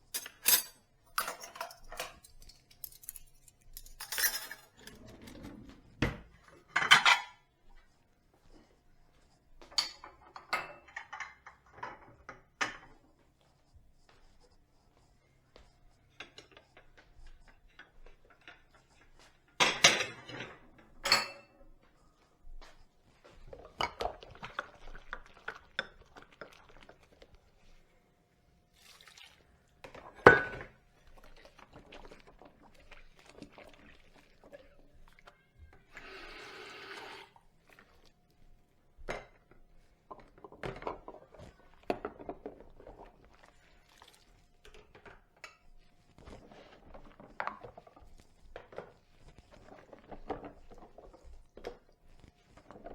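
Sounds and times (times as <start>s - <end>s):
crockery and cutlery clinking: 0.0s - 7.5s, 9.7s - 13.0s, 19.5s - 21.6s, 30.1s - 30.8s.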